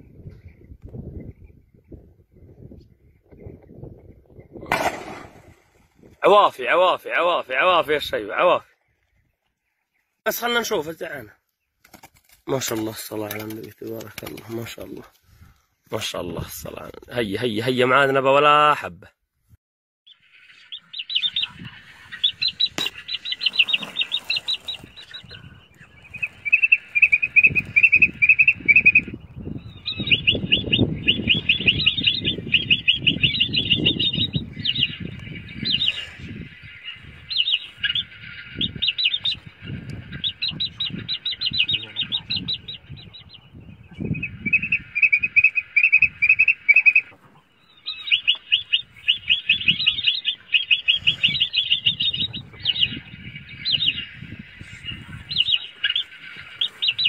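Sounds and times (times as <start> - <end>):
birds chirping in trills: 20.1 - 57.0.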